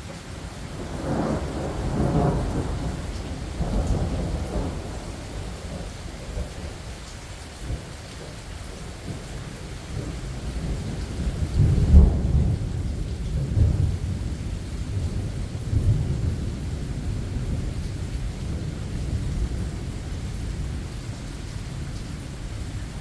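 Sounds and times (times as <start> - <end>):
steady rain: 0.0 - 23.0
thunder rumbling: 0.8 - 6.8, 9.1 - 21.1.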